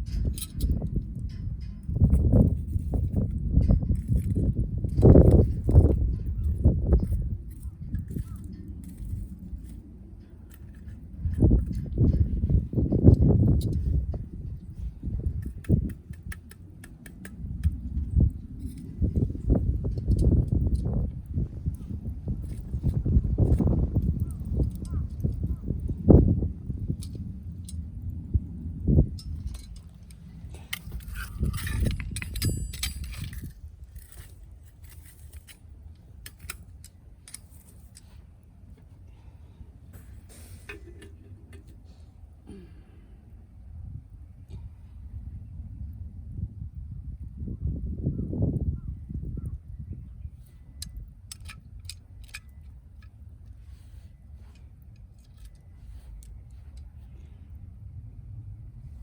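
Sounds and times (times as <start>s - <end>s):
low steady rumble: 0.0s - 48.2s, 48.8s - 59.0s
wood fire crackling and popping: 4.0s - 38.2s
clink: 31.0s - 33.5s.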